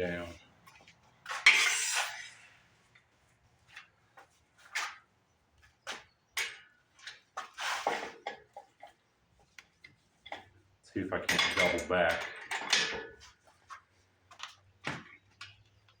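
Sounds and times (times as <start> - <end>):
metal chain clanking and rattling: 11.2 - 13.2.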